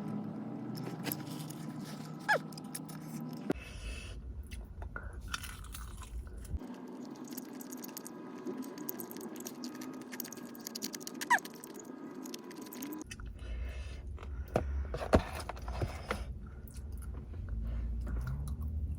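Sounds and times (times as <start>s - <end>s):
chewing crispy fried chicken: 5.2s - 13.2s.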